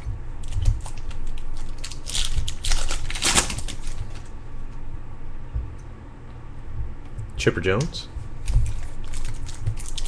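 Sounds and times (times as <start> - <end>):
foil wrapper crinkling and tearing: 0.4 - 4.3, 8.4 - 10.0.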